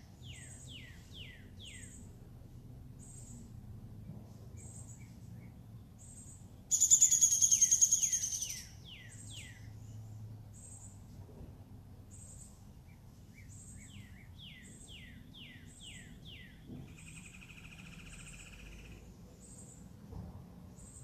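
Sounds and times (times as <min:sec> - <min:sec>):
birds chirping: 0:00.0 - 0:02.1, 0:04.6 - 0:09.9
buzzy bird trill: 0:06.7 - 0:09.5.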